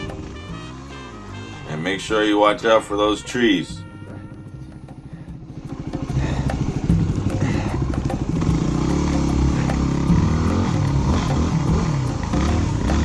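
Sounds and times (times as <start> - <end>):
off-road motorcycle engine revving: 5.1 - 13.0.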